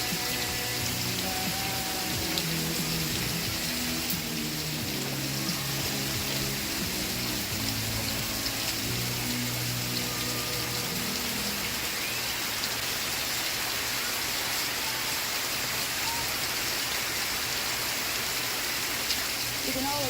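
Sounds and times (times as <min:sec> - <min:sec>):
faint background music: 0:00.0 - 0:12.5
steady rain falling: 0:00.0 - 0:20.0.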